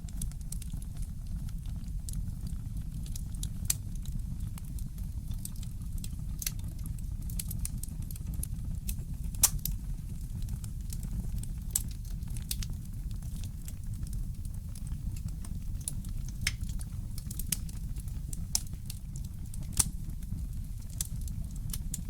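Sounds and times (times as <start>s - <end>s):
fire crackling: 0.1s - 22.0s.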